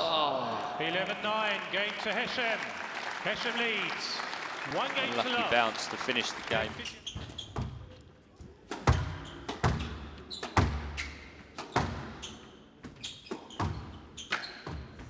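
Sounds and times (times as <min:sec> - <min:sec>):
squash ball strikes echoing: 0:08.7 - 0:12.2.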